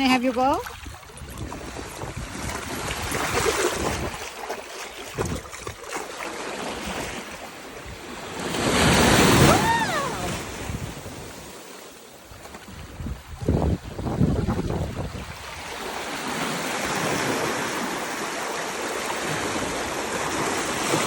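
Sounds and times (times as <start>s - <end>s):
wind on microphone: 0.0s - 11.5s, 12.3s - 21.0s
surf breaking on beach: 1.4s - 11.9s, 12.5s - 21.0s
rising and falling call: 9.4s - 10.5s.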